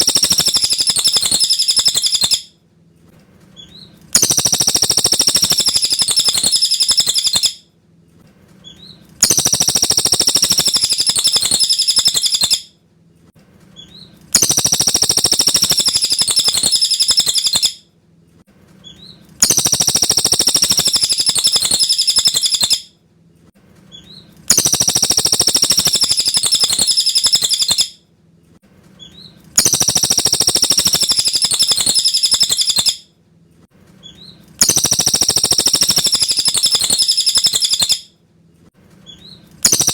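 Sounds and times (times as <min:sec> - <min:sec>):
bird singing trilling phrase: 0:00.0 - 0:02.4, 0:03.7 - 0:07.6, 0:09.2 - 0:12.6, 0:13.9 - 0:17.8, 0:18.9 - 0:22.8, 0:24.0 - 0:27.9, 0:29.0 - 0:33.0, 0:34.1 - 0:38.0.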